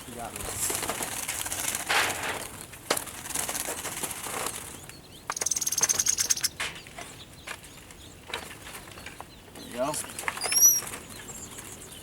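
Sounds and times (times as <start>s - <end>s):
rapid wing-beating: 0.1s - 4.8s
small birds fluttering in trap: 0.1s - 6.5s.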